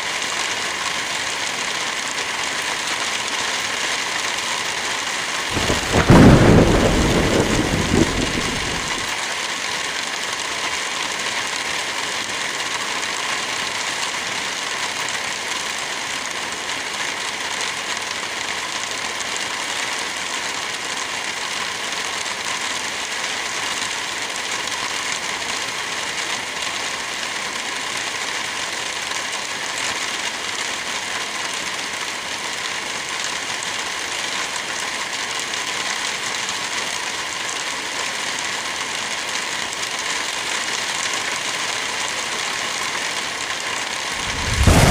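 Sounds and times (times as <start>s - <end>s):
light rain: 0.0s - 44.9s
wind through trees: 5.5s - 9.1s, 44.1s - 44.9s
loud low rumble: 5.6s - 9.0s, 44.2s - 44.9s.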